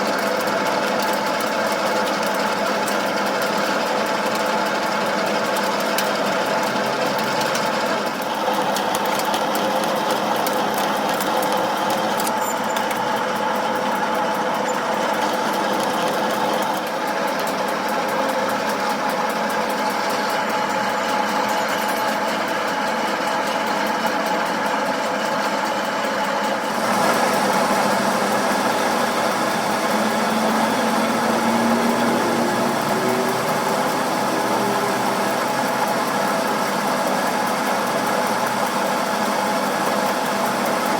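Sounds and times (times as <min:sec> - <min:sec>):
machine humming: 0:26.6 - 0:39.8.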